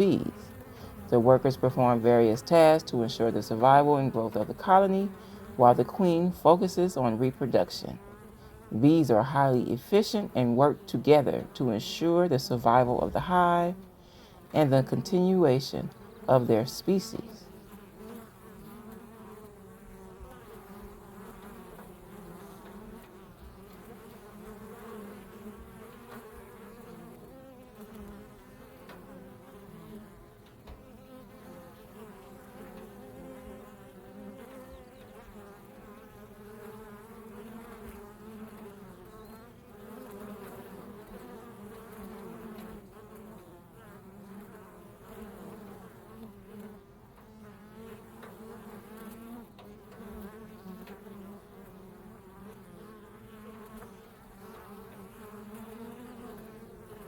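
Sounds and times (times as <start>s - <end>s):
bees buzzing: 0.0s - 57.0s.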